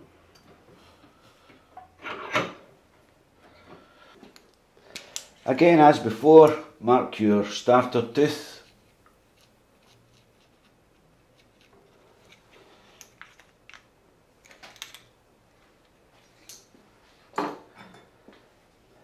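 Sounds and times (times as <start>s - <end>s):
light clicks and scrapes on chain: 9.3s - 13.2s.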